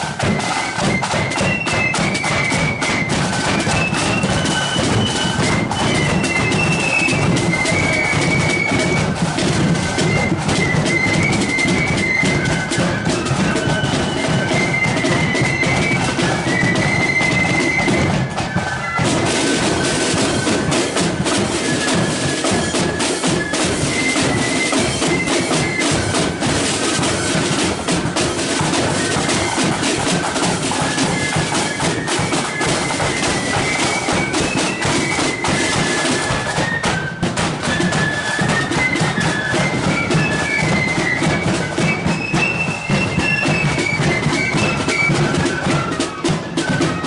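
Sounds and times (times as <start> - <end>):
flute melody: 0.0 - 47.0
snare and bass drums: 0.0 - 47.0.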